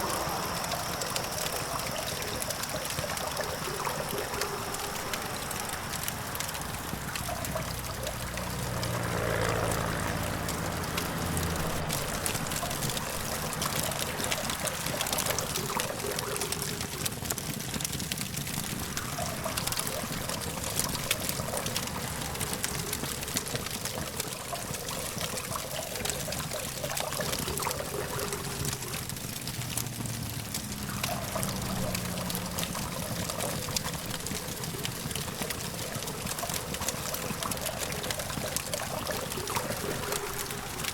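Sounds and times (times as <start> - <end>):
passing vehicle engine drone: 0.0 - 3.4, 4.0 - 15.3, 28.0 - 34.4
campfire crackling and popping: 0.0 - 40.9
distant traffic hum: 0.0 - 40.9.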